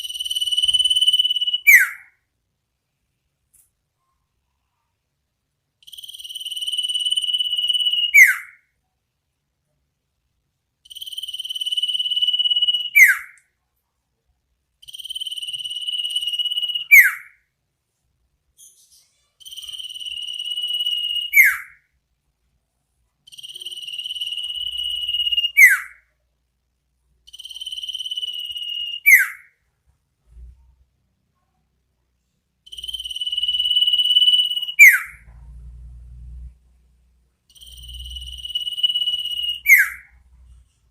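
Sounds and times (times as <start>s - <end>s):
bird trilling and whistling: 0.0s - 2.2s, 5.9s - 8.6s, 10.9s - 13.4s, 14.9s - 17.4s, 18.6s - 21.8s, 23.3s - 26.1s, 27.3s - 29.5s, 32.7s - 35.3s, 37.6s - 40.2s.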